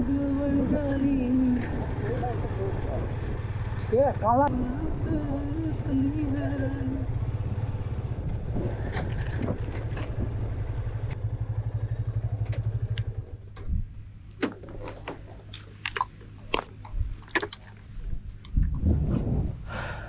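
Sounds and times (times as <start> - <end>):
motorcycle engine idling: 0.0 - 14.4.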